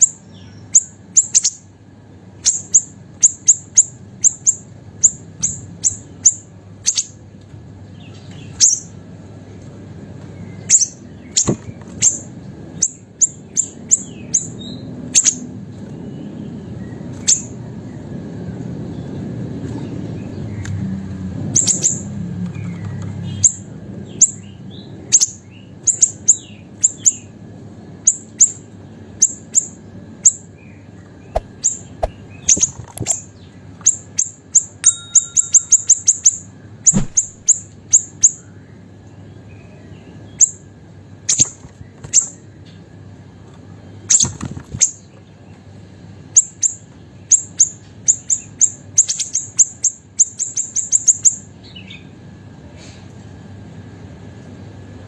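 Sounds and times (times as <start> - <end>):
songbird high sharp chips: 31.4 - 33.2.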